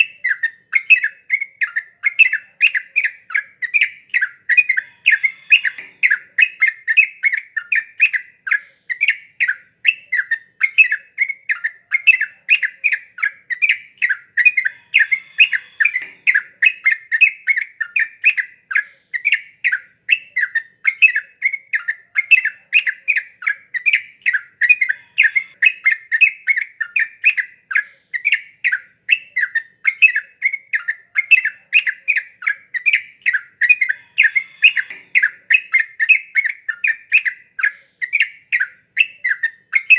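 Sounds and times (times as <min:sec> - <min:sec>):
bulbul singing sharp notes: 0:00.0 - 0:17.6, 0:27.3 - 0:39.9.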